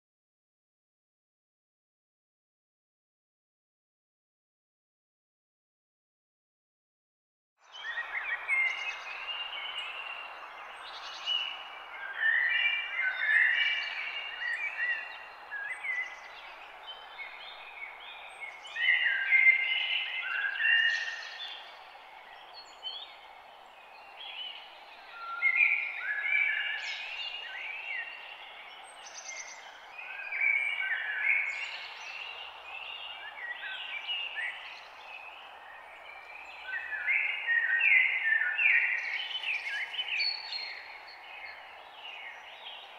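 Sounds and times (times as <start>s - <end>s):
songbirds singing: 7.6s - 42.9s.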